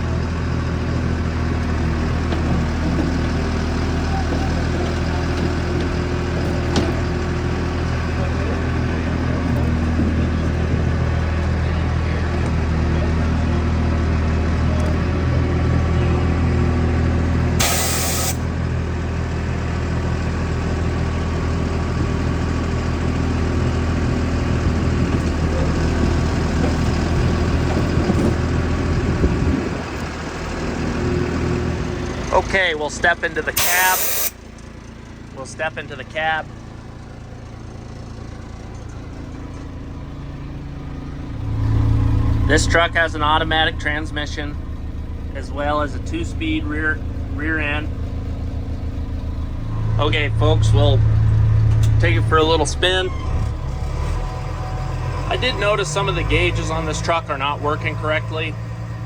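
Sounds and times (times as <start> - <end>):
truck engine running: 0.0 - 59.0
air hiss: 17.6 - 18.4, 33.6 - 34.4
feed mixer operating: 17.6 - 18.4.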